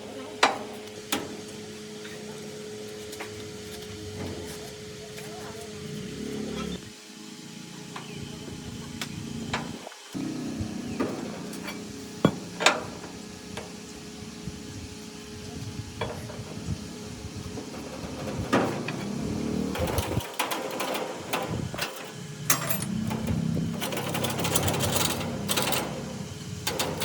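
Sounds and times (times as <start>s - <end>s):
rapid clicks and rattles: 17.5s - 27.0s
clicks and knocks on metal parts: 19.8s - 27.0s.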